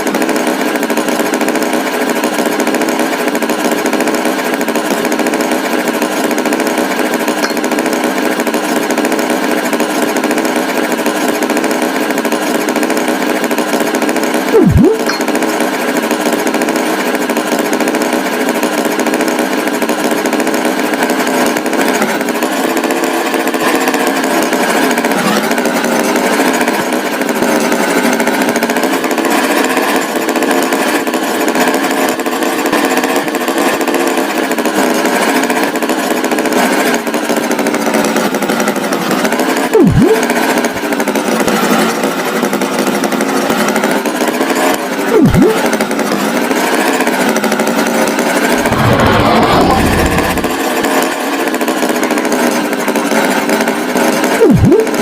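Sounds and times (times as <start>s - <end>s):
tractor engine buzzing drone: 0.0s - 31.4s, 36.7s - 52.9s, 54.4s - 55.0s
tone sweeping downward: 14.6s - 15.4s, 39.8s - 40.3s, 45.2s - 45.7s, 48.5s - 50.9s, 54.4s - 55.0s.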